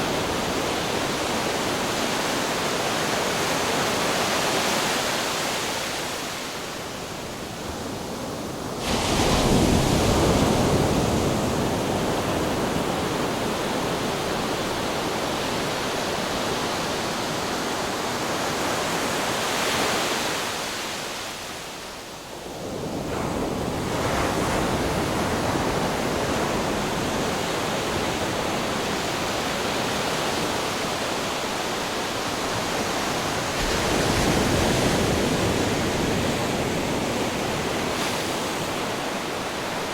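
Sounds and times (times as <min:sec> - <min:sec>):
ocean waves breaking on rocks: 0:23.3 - 0:39.9.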